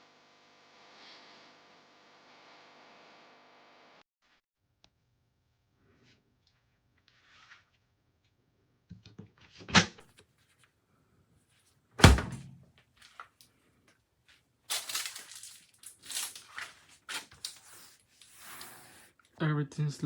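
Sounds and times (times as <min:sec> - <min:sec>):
rustling and handling noise: 0:11.5 - 0:13.4, 0:14.2 - 0:19.0
heavy thunk: 0:12.0 - 0:12.6
knocks: 0:12.0 - 0:12.6.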